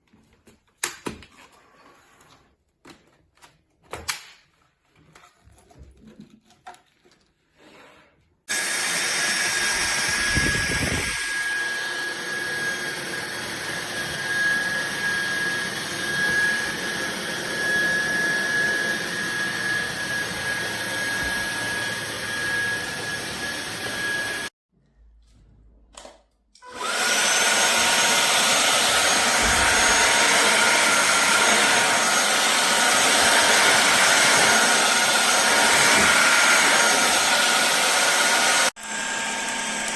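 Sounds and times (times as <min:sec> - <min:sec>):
vacuum cleaner motor whining: 0:08.5 - 0:24.5, 0:26.6 - 0:39.9.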